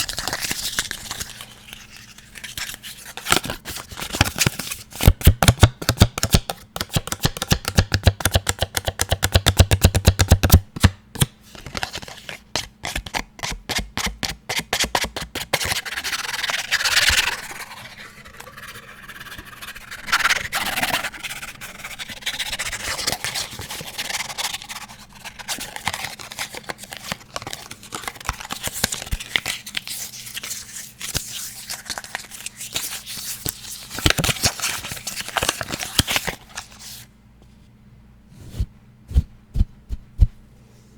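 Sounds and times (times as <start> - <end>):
fast tapping on hard objects: 5.5 - 10.6
scratching and brushing: 15.6 - 27.2.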